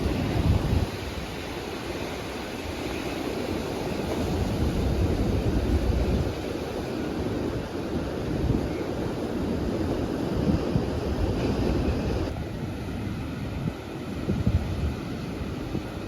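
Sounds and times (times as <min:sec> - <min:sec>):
ocean surf: 0:00.0 - 0:16.0
wind buffeting microphone: 0:00.0 - 0:16.0.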